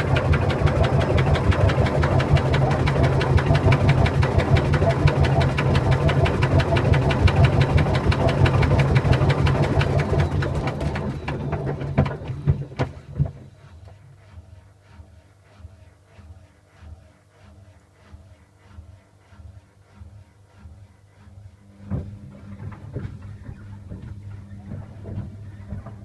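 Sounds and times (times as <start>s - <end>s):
washing machine knocking: 0.0s - 13.4s, 21.8s - 26.0s
washing machine running: 0.0s - 14.6s, 20.0s - 26.0s.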